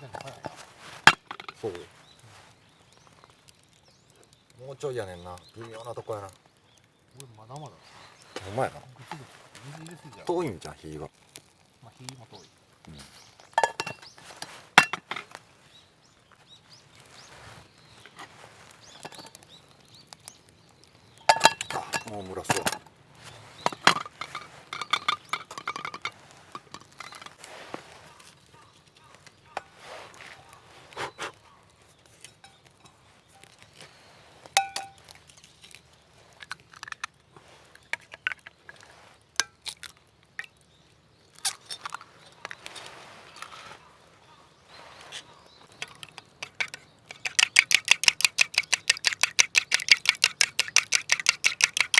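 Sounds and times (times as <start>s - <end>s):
metal cookware clanking: 0.0s - 1.6s, 13.6s - 15.3s, 21.3s - 22.9s, 23.6s - 27.3s, 34.6s - 35.0s
faint bird chirps: 27.0s - 35.1s, 40.0s - 51.9s.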